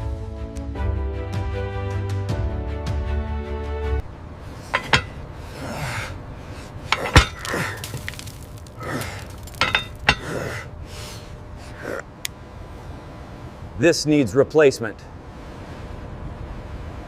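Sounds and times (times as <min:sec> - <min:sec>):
background music: 0:00.0 - 0:04.0
sharp clinks and knocks: 0:04.7 - 0:05.2, 0:06.9 - 0:10.3.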